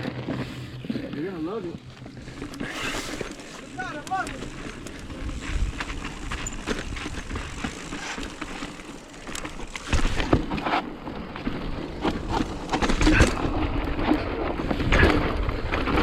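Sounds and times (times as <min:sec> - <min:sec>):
bike knocking and rattling: 0:00.0 - 0:16.0
bike tyres on dirt: 0:00.0 - 0:16.0
wind buffeting microphone: 0:04.2 - 0:08.4.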